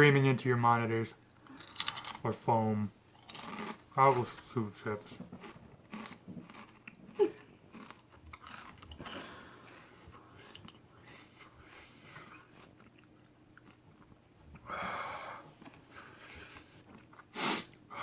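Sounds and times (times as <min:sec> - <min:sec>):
person chewing crunchy chip: 0:01.4 - 0:02.3, 0:03.1 - 0:14.6.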